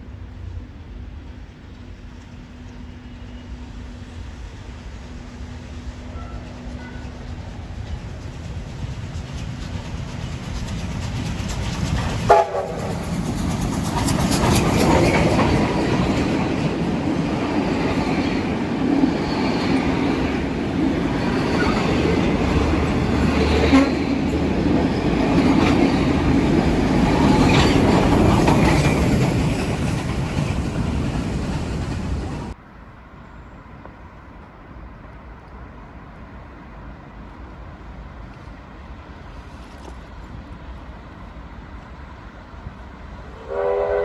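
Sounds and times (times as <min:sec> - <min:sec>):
train wheels on rails: 0:00.0 - 0:32.6
train horn toot: 0:06.0 - 0:07.2, 0:12.3 - 0:13.0, 0:23.4 - 0:24.2, 0:43.4 - 0:44.0.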